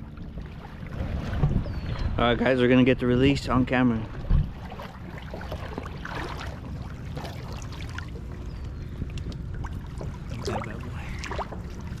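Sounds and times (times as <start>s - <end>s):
steady low rumble: 0.0s - 12.0s
water sloshing and trickling: 0.0s - 12.0s
small splashes: 4.1s - 8.4s, 9.2s - 12.0s.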